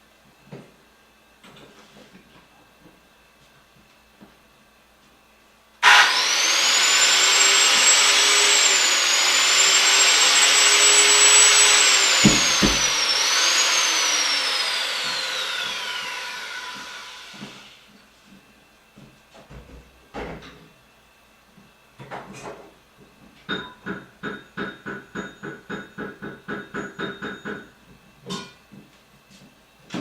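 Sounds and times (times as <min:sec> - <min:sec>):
electric motor whining: 0:05.8 - 0:17.8.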